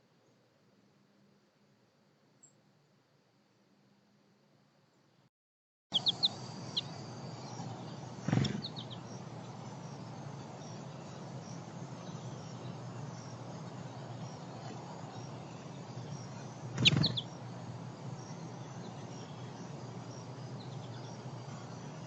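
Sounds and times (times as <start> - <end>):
sharp bird call: 5.9 - 9.1, 16.7 - 17.3
low background hum: 5.9 - 22.0
small birds chirping: 5.9 - 22.0.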